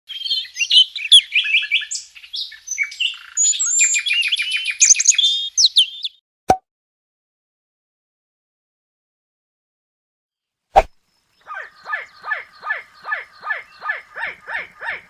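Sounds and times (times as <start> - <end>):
songbird singing: 0.1 - 6.2, 11.0 - 15.0.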